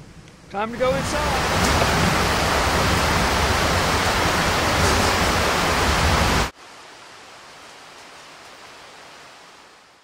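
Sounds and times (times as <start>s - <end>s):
rain rushing hiss: 0.0s - 10.0s.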